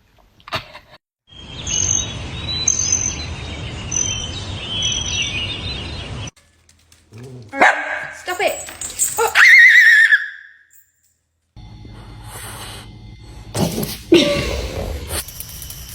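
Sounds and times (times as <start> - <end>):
birds chirping: 1.3 - 9.4.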